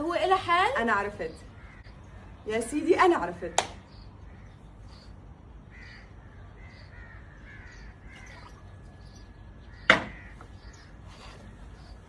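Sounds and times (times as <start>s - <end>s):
faint bird calls: 1.3s - 2.5s, 3.8s - 12.0s.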